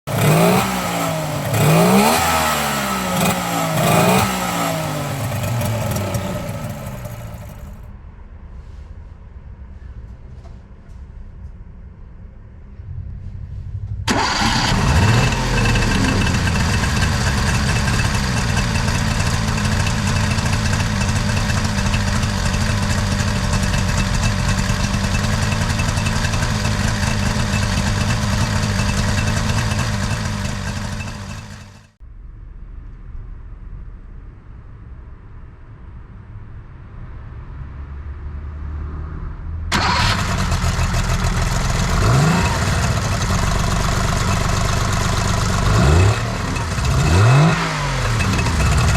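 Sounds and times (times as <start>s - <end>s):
two-stroke car engine running: 0.1s - 7.8s, 14.1s - 32.0s, 39.7s - 48.9s
low rumble: 11.0s - 28.9s, 30.2s - 38.0s.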